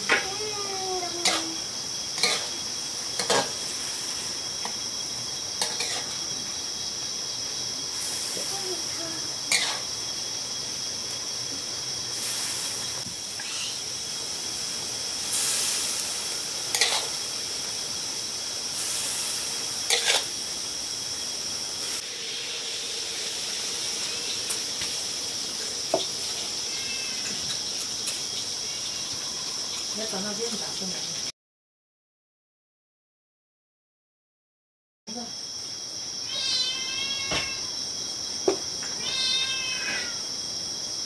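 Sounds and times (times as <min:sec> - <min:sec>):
food sizzling in a pan: 0:00.0 - 0:31.3
high-pitched insect drone: 0:00.0 - 0:31.3, 0:35.1 - 0:41.0.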